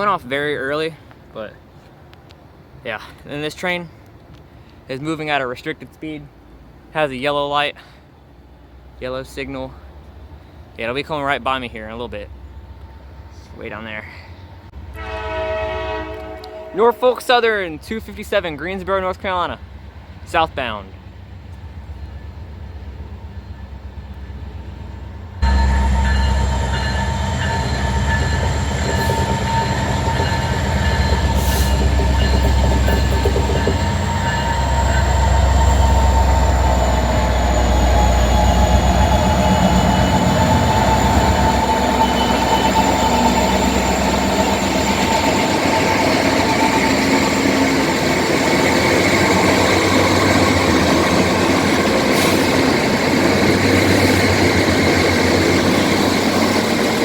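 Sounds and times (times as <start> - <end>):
diesel locomotive engine rumble: 0.0 - 57.0
freight cars rolling: 25.4 - 57.0
high-pitched squeal: 25.4 - 57.0.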